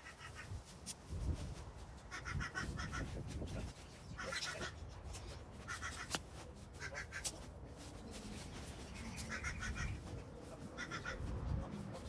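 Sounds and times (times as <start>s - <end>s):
bird calling: 8.9s - 10.1s, 10.7s - 11.3s.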